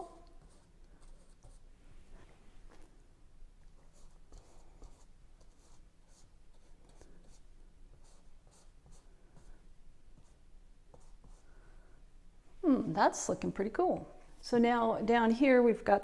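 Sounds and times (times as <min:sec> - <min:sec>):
paintbrush scratchy strokes: 0:00.0 - 0:02.9.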